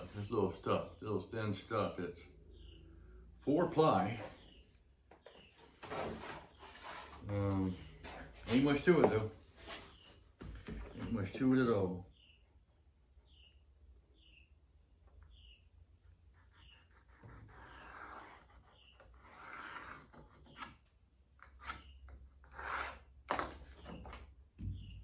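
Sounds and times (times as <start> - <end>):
plywood rubbing and scraping: 0.0 - 0.9, 3.4 - 11.4, 21.4 - 25.0.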